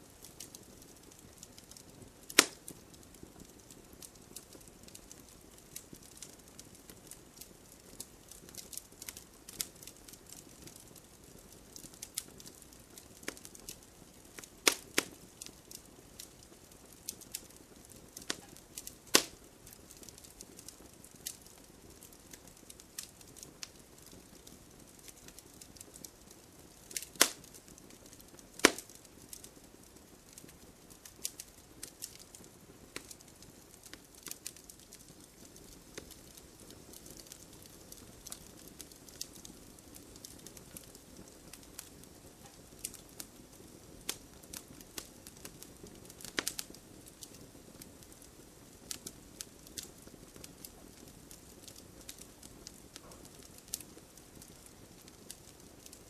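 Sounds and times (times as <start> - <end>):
faint low hiss: 0.0 - 56.0
wood fire crackling: 0.0 - 56.0
loud sharp fire pops: 2.3 - 2.8, 14.4 - 15.2, 18.2 - 20.2, 26.9 - 29.4.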